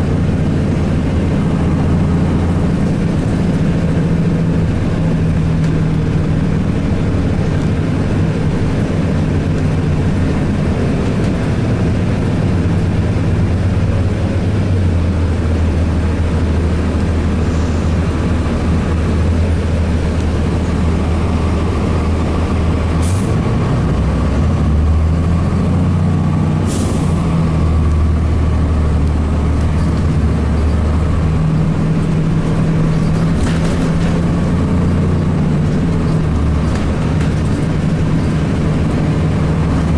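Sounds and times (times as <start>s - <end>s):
bus diesel engine running: 0.0s - 39.9s
air brake hisses: 26.6s - 27.2s.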